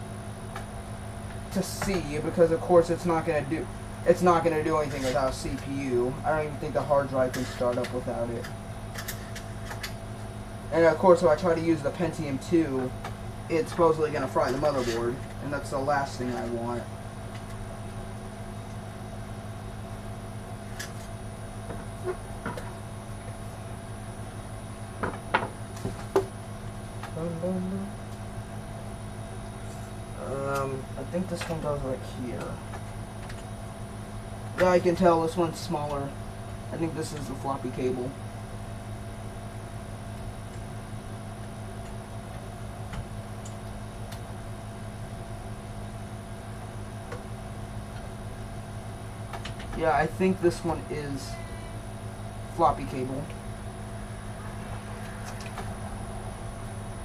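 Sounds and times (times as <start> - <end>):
high whine: 0.0 - 57.0
steady low hum: 0.0 - 57.0.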